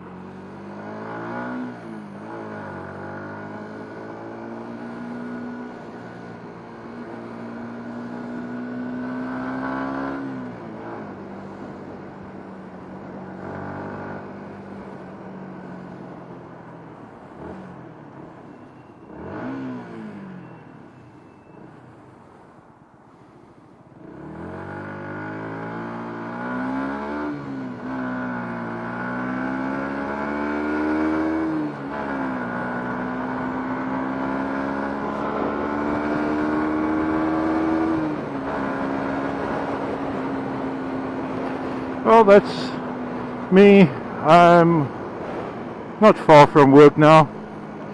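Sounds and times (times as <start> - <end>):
motorcycle engine shifting gears: 24.1 - 46.0.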